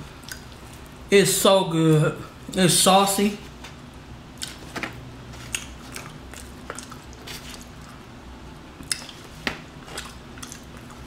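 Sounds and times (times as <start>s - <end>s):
wet sloppy chewing: 5.4s - 8.1s, 8.8s - 11.0s.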